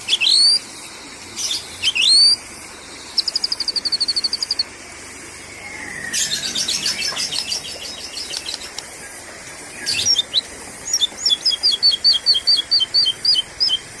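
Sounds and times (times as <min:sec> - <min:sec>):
bird chattering: 0:03.2 - 0:04.7, 0:09.8 - 0:13.9.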